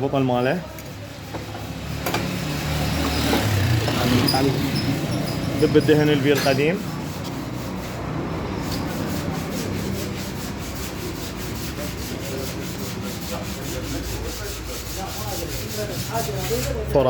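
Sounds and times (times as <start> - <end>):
rapid rubbing of fork tube: 3.4 - 17.0.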